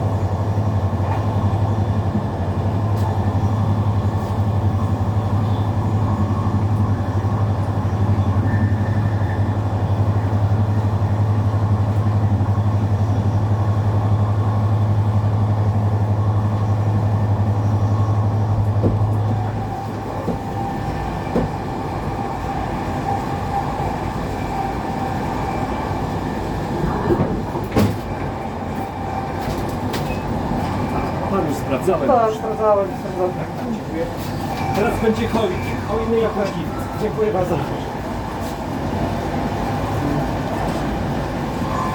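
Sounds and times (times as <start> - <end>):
train low hum: 0.0 - 41.9
train wheels rumbling on track: 0.0 - 41.9
sharp knocks: 18.8 - 19.5.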